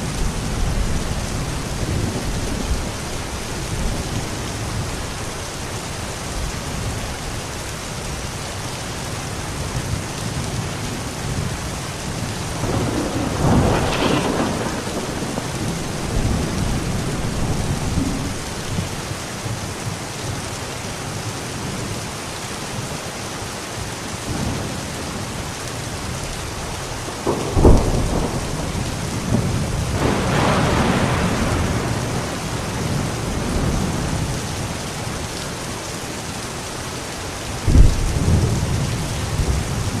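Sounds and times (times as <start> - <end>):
heavy rain: 0.0 - 40.0
thunder rumbling: 11.4 - 19.1, 26.0 - 35.3, 37.6 - 40.0
sharp thunder crack: 12.6 - 18.4, 27.2 - 32.3, 37.7 - 38.8.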